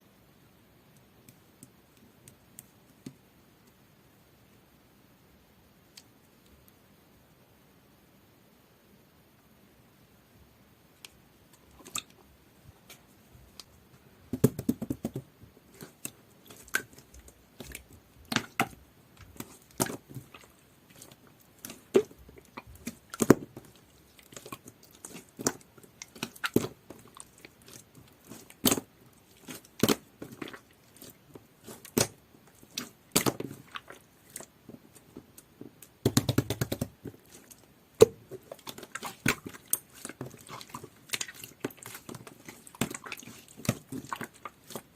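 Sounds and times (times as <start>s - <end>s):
slime squishing and popping: 14.4s - 44.9s.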